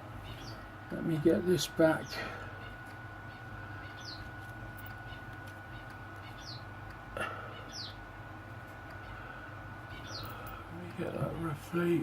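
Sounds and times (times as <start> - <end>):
faint electrical whine and hum: 0.0 - 12.0
small bird chirping: 0.2 - 0.7, 1.9 - 6.8, 7.5 - 8.0, 9.9 - 10.6.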